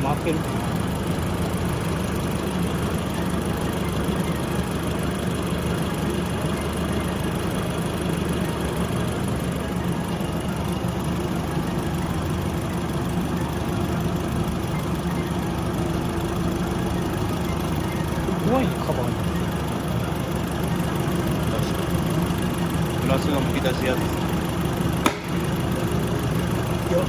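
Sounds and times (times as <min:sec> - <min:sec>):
air conditioning running: 0:00.0 - 0:27.0
car engine idling: 0:00.0 - 0:27.0.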